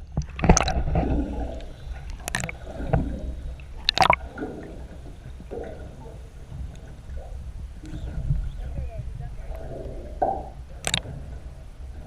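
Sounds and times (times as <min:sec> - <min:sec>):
water sloshing: 0:00.0 - 0:12.0
sharp water splashes: 0:00.2 - 0:04.8, 0:10.2 - 0:11.3.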